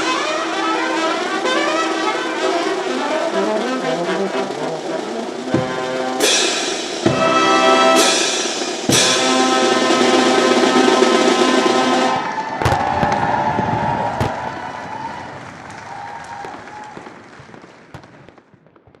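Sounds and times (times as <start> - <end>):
brass band playing: 0.0 - 14.4
drum and cymbal strikes: 4.4 - 12.3.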